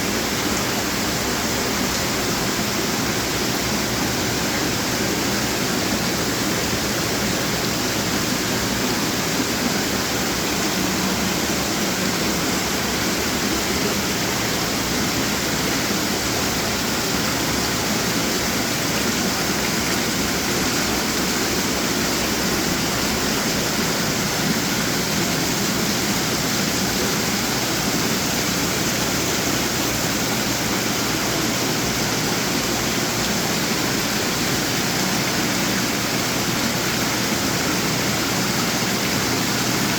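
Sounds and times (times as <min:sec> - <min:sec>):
fountains splashing and trickling: 0:00.0 - 0:39.9.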